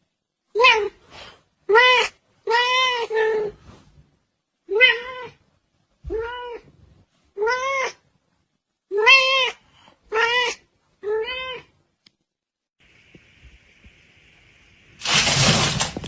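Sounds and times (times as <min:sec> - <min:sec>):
cat meowing: 0:04.7 - 0:05.4, 0:06.1 - 0:06.7, 0:08.9 - 0:11.7.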